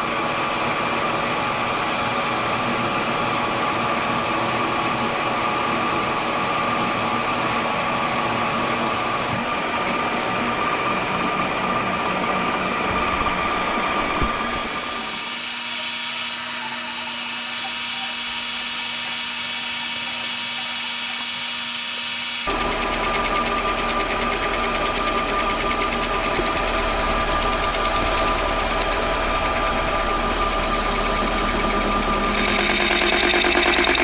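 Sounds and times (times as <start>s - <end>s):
small electric motor running: 0.0s - 11.9s, 12.7s - 34.0s.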